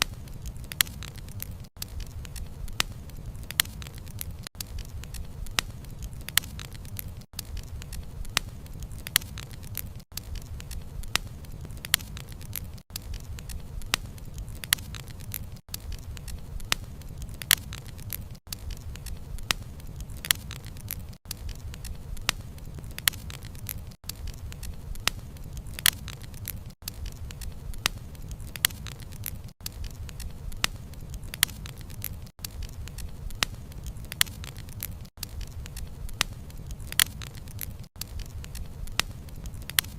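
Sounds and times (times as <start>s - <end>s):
bonfire crackling and popping: 0.0s - 39.9s
low rumble of flame: 0.0s - 39.9s.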